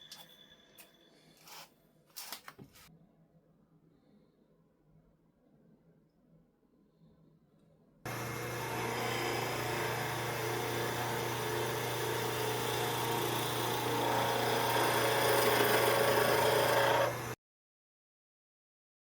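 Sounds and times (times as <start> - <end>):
chisel grinding on wheel: 8.1 - 17.4
sharpening machine motor hum: 8.1 - 17.4.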